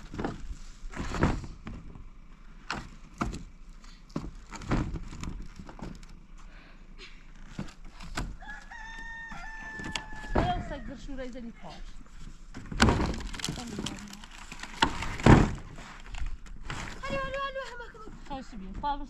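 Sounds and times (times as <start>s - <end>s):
rooster crowing: 8.3s - 11.0s
knocks and clatter: 12.5s - 17.5s.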